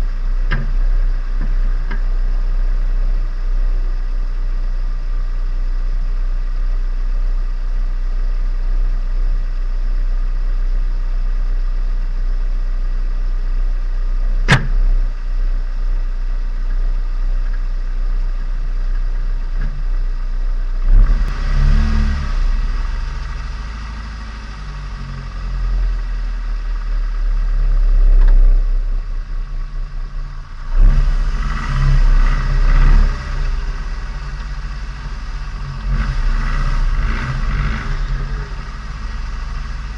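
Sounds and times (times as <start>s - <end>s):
car engine and exhaust: 0.0s - 39.9s
sharp click: 14.5s - 14.8s
engine accelerating: 20.7s - 39.9s.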